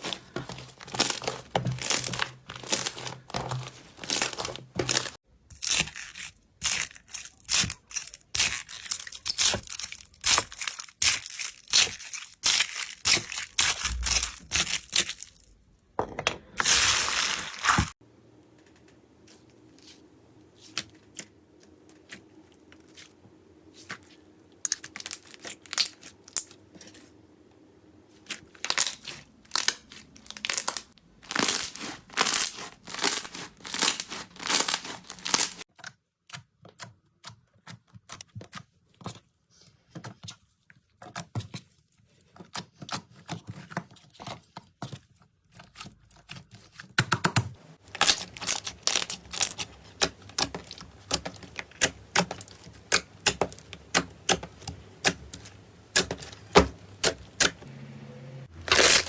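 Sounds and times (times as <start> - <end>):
slime crackling and popping: 0.0 - 15.4, 24.7 - 26.5, 28.6 - 35.6, 47.8 - 57.6, 58.6 - 59.0.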